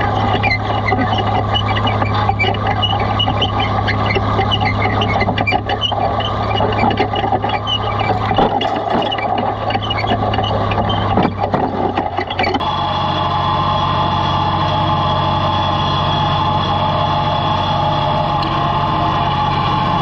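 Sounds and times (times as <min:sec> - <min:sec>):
plow frame rattling and clanking: 0:00.0 - 0:12.6
tractor engine running under load: 0:00.0 - 0:20.0.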